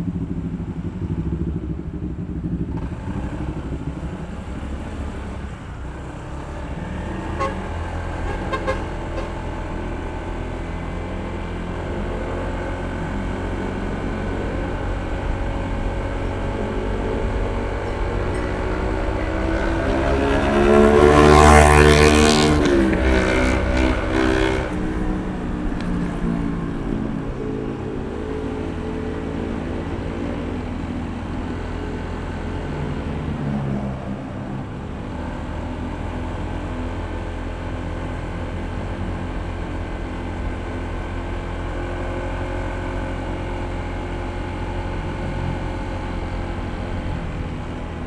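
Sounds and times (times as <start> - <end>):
scooter engine running: 0.0 - 48.0
vehicle passing by: 0.3 - 37.5.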